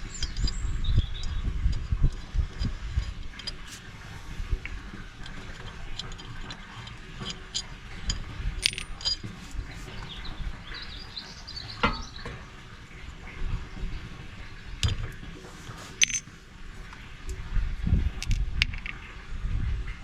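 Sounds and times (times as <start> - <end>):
hand tools clinking on metal: 5.2 - 10.2, 11.8 - 12.3, 15.7 - 16.3.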